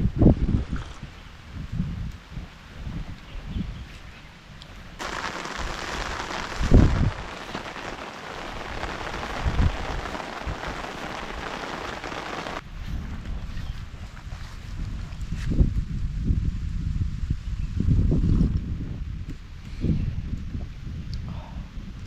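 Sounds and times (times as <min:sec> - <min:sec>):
heavy rain hissing: 0:05.0 - 0:12.6.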